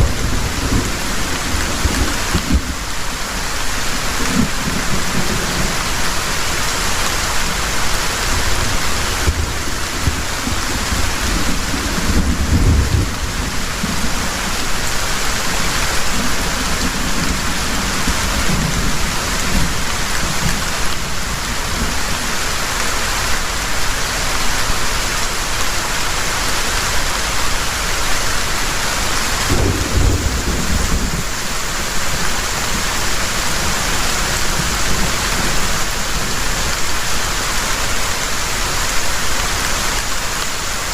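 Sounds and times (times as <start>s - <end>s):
low thunder rumbles: 0.0s - 3.2s, 8.4s - 22.0s, 29.4s - 35.9s
heavy rain pouring: 0.0s - 40.9s.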